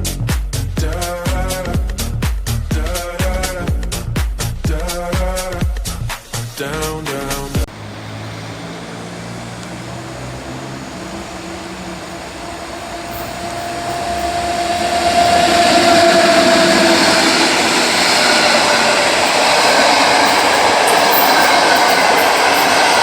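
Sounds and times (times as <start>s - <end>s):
train running noise: 7.5s - 23.0s
steady high tone: 7.7s - 23.0s.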